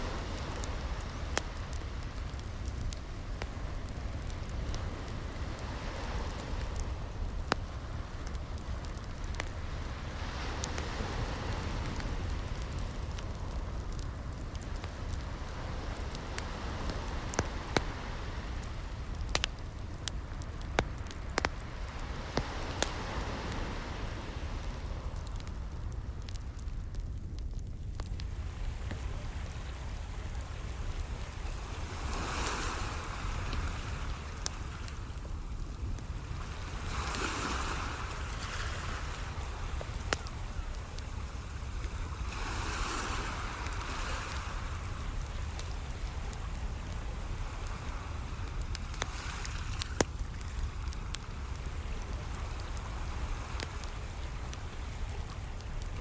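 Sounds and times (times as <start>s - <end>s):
waves rushing: 0.0s - 25.7s, 28.3s - 55.4s
wood fire crackling: 0.0s - 56.0s
sharp pops of fire: 18.6s - 23.6s, 39.0s - 41.1s.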